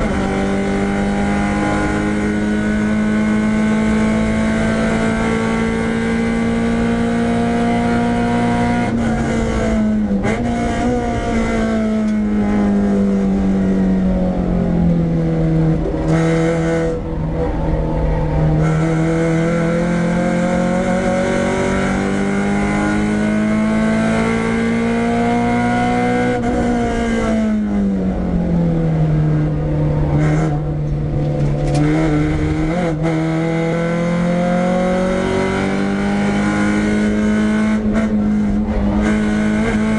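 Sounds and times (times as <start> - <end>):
car engine revving high: 0.0 - 39.9.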